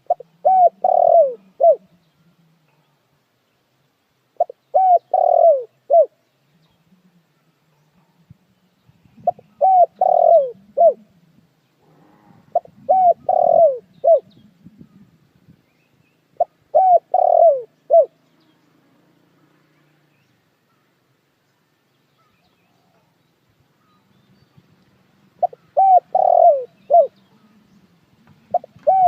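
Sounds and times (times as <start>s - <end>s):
dove cooing: 0.0s - 2.0s, 4.4s - 6.2s, 9.2s - 15.2s, 16.3s - 18.2s, 25.4s - 29.0s.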